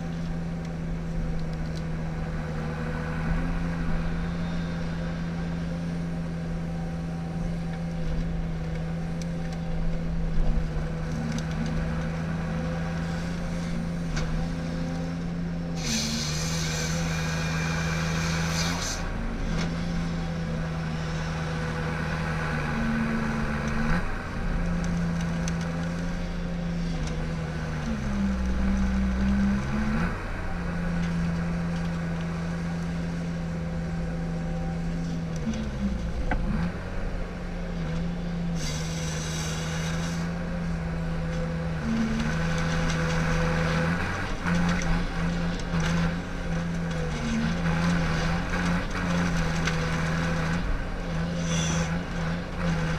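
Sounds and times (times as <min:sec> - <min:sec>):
diesel engine running: 0:00.0 - 0:52.9
brief hiss: 0:38.6 - 0:40.2.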